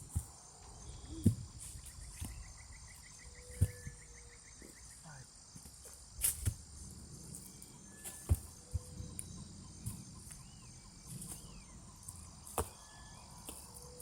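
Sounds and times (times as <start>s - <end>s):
high-pitched insect chorus: 0.0s - 14.0s
whistled bird calls: 7.4s - 14.0s.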